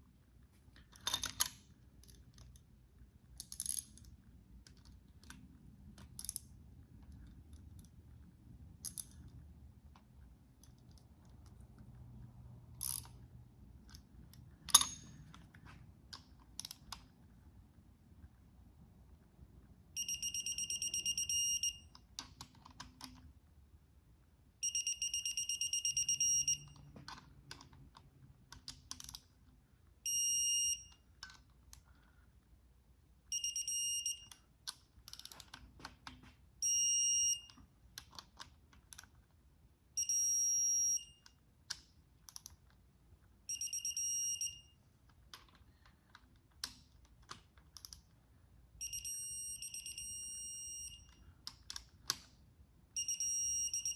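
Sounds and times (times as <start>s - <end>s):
torque wrench beeping: 48.8s - 51.1s, 53.0s - 53.9s.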